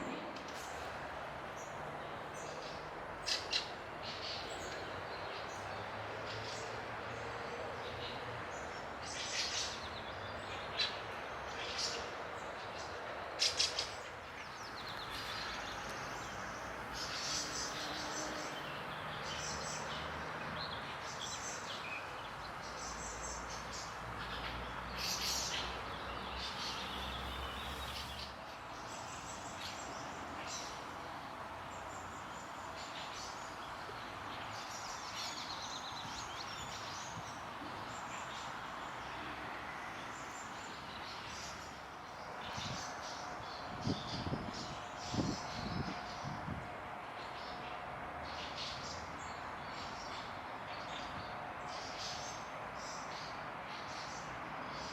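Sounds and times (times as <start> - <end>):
songbirds chirping: 0.0 - 54.9.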